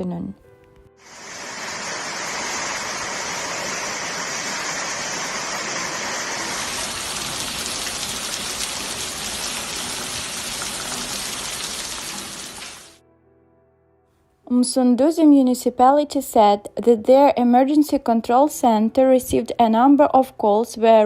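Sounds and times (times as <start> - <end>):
heavy rain: 1.0 - 13.0
storm water rushing: 1.0 - 13.0.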